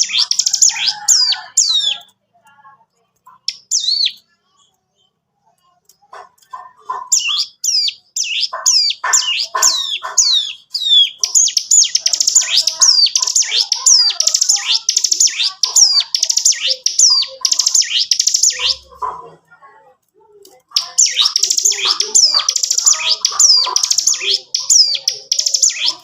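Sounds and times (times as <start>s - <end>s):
bird singing high sweeping notes: 7.2s - 18.9s.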